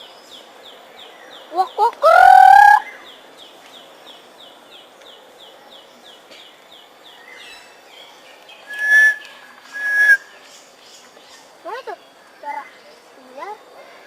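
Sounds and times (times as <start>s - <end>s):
soft bird calls: 7.3s - 13.0s
high falling bird chirps: 8.6s - 10.7s
bird rising call: 8.7s - 10.3s.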